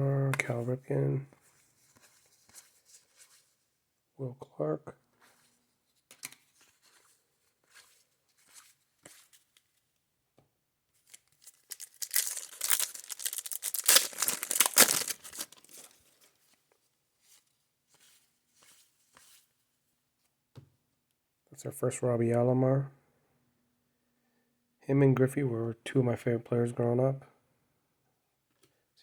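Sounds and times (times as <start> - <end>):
cards being handled: 5.2 - 9.8, 11.0 - 16.6
wrapper tearing and crinkling: 11.0 - 16.0.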